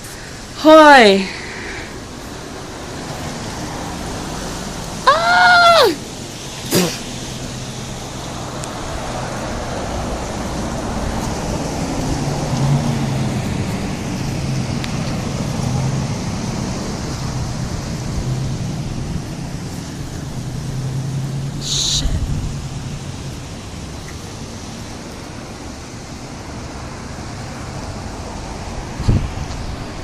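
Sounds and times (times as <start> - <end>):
passing car engines humming: 1.2 - 30.0
tyre noise: 6.6 - 7.1.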